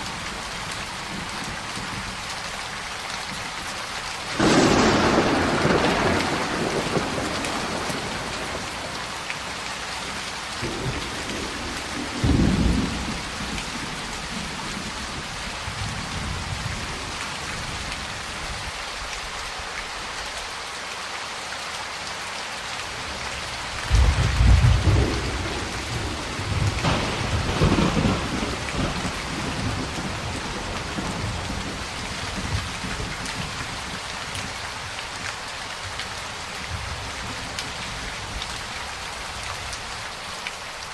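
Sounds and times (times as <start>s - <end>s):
heavy rain: 0.0s - 40.9s
rolling thunder: 4.4s - 9.2s, 10.6s - 16.8s, 23.9s - 33.6s.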